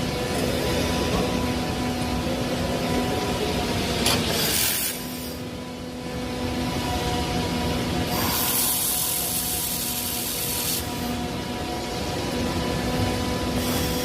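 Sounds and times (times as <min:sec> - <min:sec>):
workshop machinery humming: 0:00.0 - 0:14.0.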